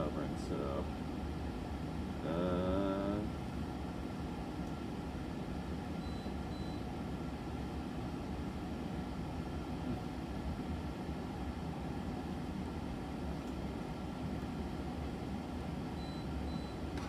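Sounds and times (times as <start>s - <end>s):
room noise rumble and hiss: 0.0s - 5.9s.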